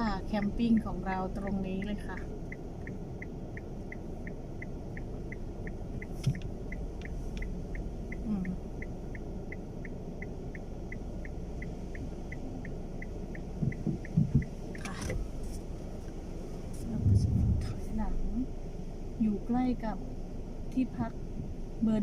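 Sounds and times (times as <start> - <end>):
car rumble: 0.0 - 22.0
low thumps: 13.4 - 14.6, 16.8 - 18.4.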